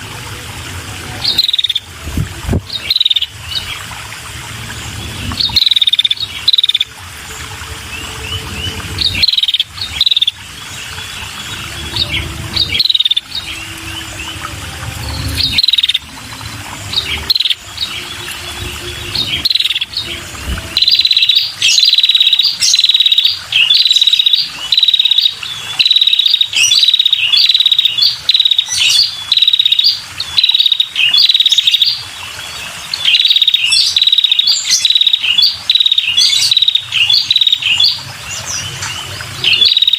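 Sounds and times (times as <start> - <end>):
low background rumble: 0.0 - 21.6
bird chirping: 7.9 - 16.1, 16.8 - 32.0, 32.9 - 39.9.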